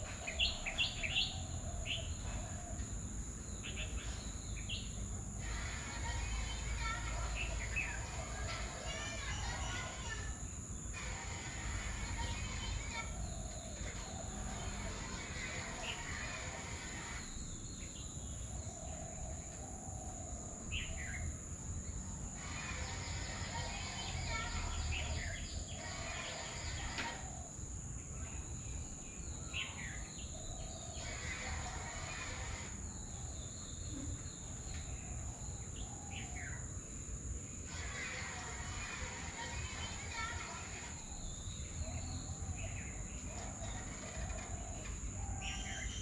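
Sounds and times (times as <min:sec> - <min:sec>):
bird chirps: 0:00.0 - 0:10.1, 0:37.7 - 0:46.0
bird chirping: 0:00.0 - 0:10.2, 0:10.9 - 0:46.0
low rumbling background noise: 0:00.0 - 0:46.0
high-pitched insect drone: 0:29.6 - 0:33.4.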